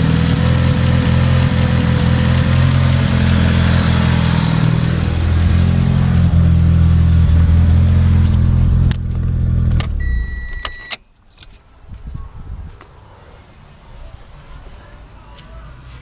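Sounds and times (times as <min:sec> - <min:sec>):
engine running with misfire: 0:00.0 - 0:10.7
keys jingling: 0:08.8 - 0:11.9
steady beep: 0:10.0 - 0:11.0.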